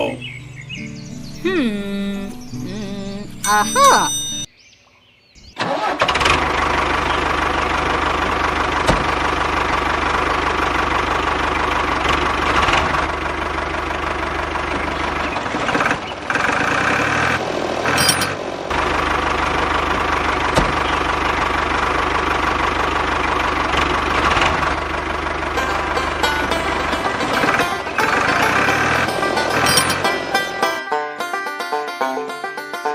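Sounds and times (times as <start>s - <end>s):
toy backhoe motor droning: 5.7s - 31.0s.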